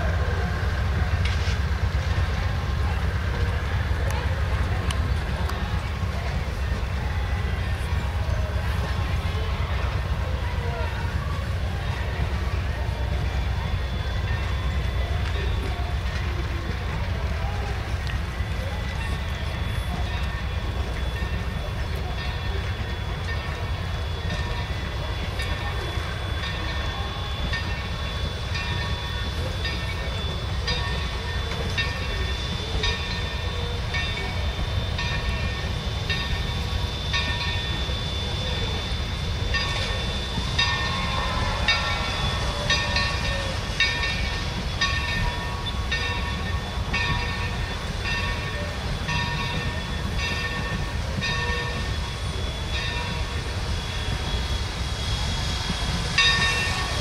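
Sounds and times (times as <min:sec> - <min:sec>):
train coaches rumbling: 0:00.0 - 0:57.0
high-pitched squeal: 0:17.6 - 0:57.0.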